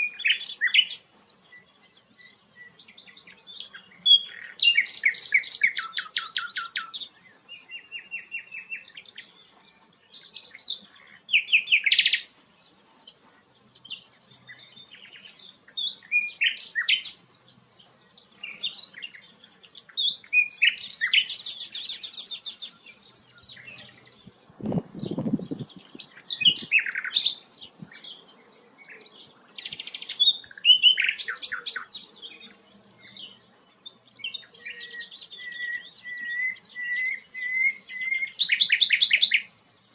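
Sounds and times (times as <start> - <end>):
flycatcher chirping and trilling: 0.0 - 7.2, 10.2 - 39.6.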